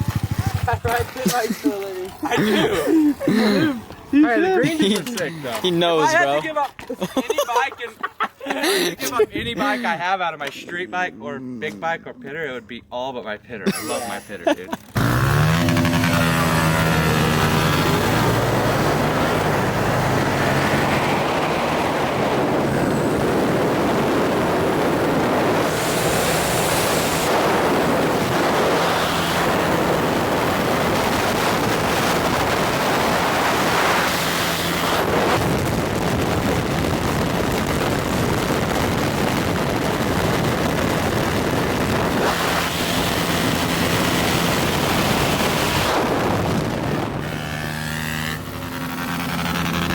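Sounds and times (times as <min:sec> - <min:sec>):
small off-road engine running: 0:00.0 - 0:02.6, 0:14.8 - 0:49.9
wind noise on microphone: 0:17.3 - 0:49.9.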